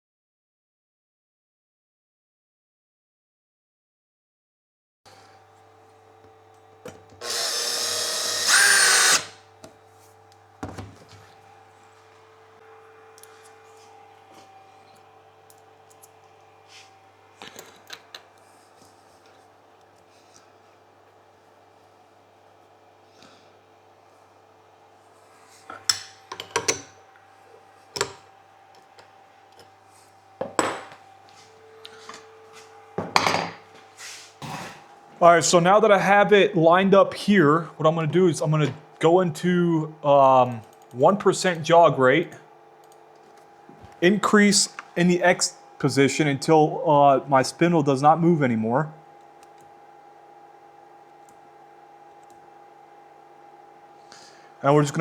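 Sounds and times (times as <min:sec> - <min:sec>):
power drill running: 0:05.1 - 0:09.7
faint machine hum: 0:05.1 - 0:55.0
click: 0:40.5 - 0:41.0, 0:42.8 - 0:43.0.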